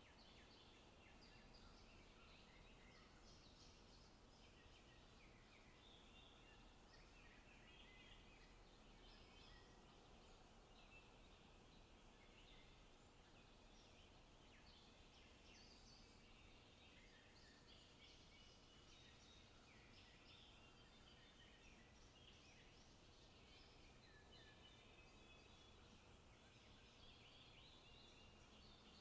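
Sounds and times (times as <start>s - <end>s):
small birds chirping and trilling: 0.0s - 29.0s
steady background hiss: 0.0s - 29.0s.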